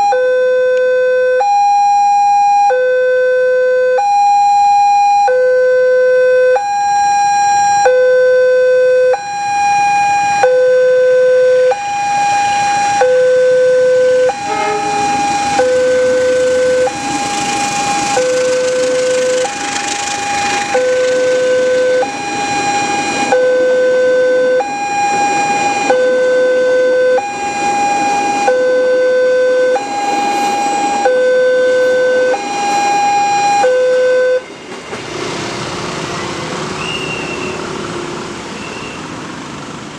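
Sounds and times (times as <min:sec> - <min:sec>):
level crossing two-tone alarm: 0:00.0 - 0:34.5
rushing noise: 0:12.0 - 0:39.9.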